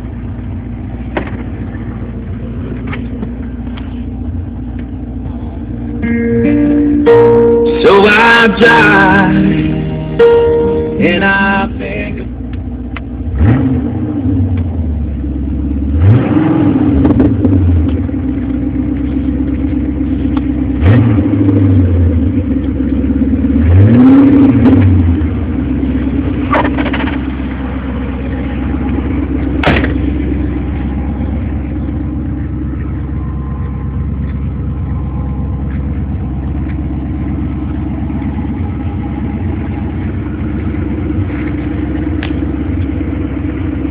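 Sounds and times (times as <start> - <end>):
car engine revving and idling: 0.0 - 43.9.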